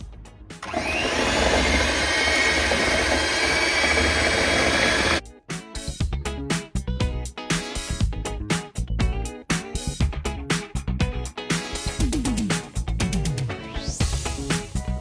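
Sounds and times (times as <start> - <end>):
electric mixer whirring: 0.6 - 5.2.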